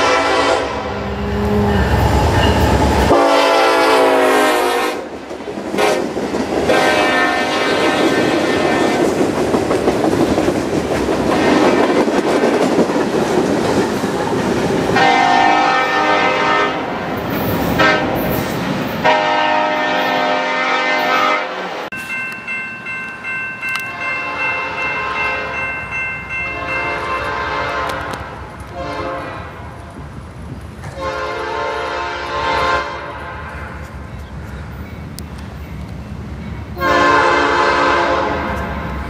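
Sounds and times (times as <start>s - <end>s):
locomotive air horn blasts: 0.0s - 1.4s, 3.1s - 5.1s, 5.8s - 6.1s, 6.7s - 9.0s, 15.0s - 17.0s, 17.8s - 18.3s, 19.0s - 21.9s, 26.6s - 29.7s, 30.9s - 33.5s, 36.8s - 38.7s
freight cars rolling on rails: 5.0s - 20.3s.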